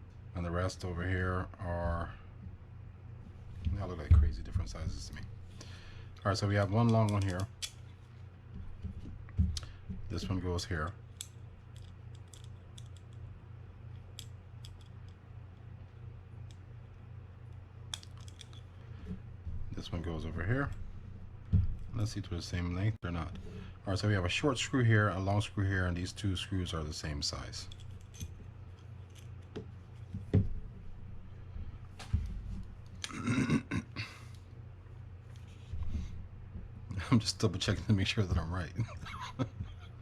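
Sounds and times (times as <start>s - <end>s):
steady low hum: 0.0s - 40.0s
small metal screws clicking: 11.2s - 13.2s.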